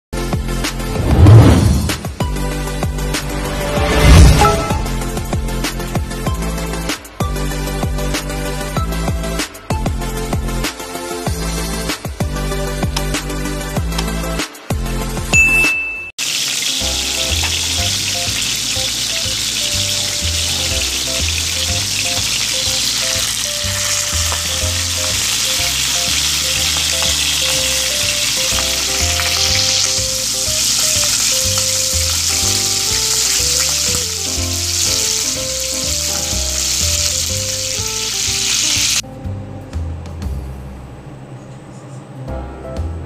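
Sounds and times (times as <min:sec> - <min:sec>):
chicken wings sizzling in oil: 0:16.2 - 0:39.0.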